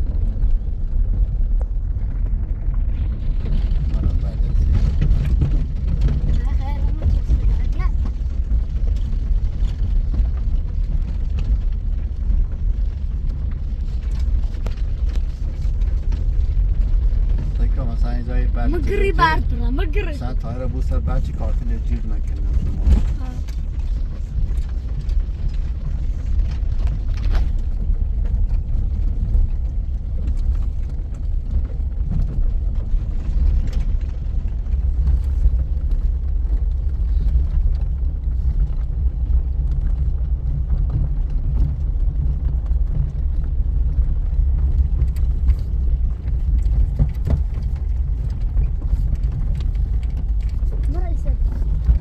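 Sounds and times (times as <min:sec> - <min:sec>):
vehicle engine and tyre rumble: 0:00.0 - 0:52.0.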